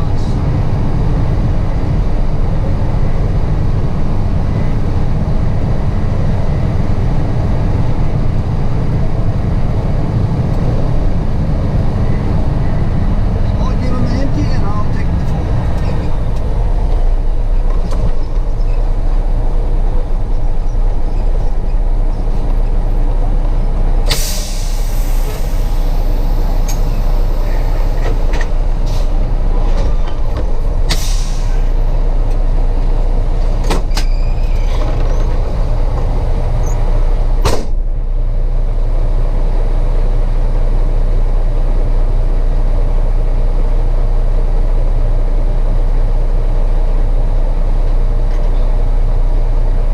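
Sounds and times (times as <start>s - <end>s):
diesel truck engine rumbling: 0.0s - 49.9s
air brake hisses: 24.1s - 27.9s, 30.9s - 31.8s.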